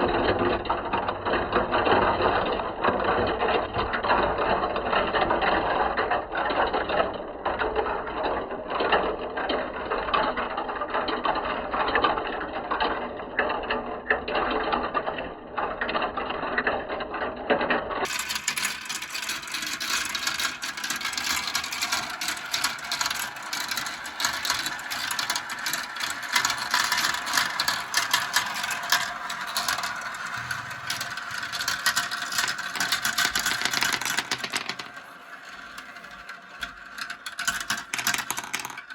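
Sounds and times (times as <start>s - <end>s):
marbles clattering down plastic track: 18.0s - 38.9s.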